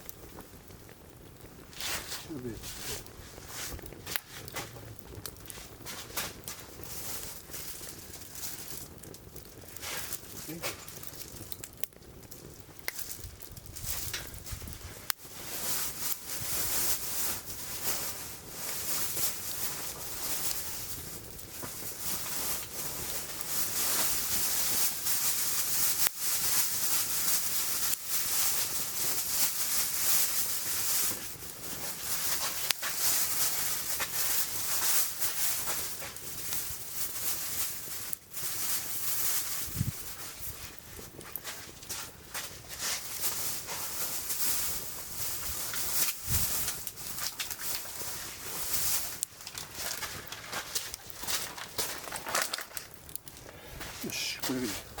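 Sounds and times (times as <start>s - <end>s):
food sizzling in hot pan: 0.0s - 40.4s
sharp crackles: 0.0s - 55.0s.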